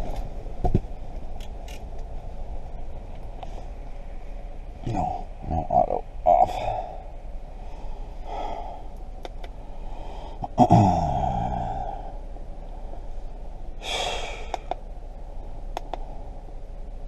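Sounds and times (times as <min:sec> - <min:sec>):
small sharp clicks: 0:09.2 - 0:09.6, 0:14.5 - 0:14.8, 0:15.8 - 0:16.1
person sighing heavily: 0:09.9 - 0:12.2, 0:13.8 - 0:14.7.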